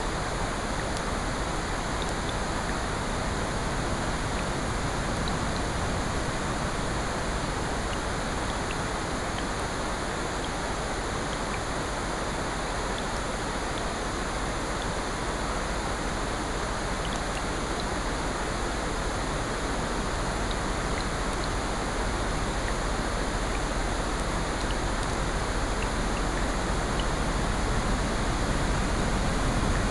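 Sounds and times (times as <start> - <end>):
rain: 0.0 - 29.9.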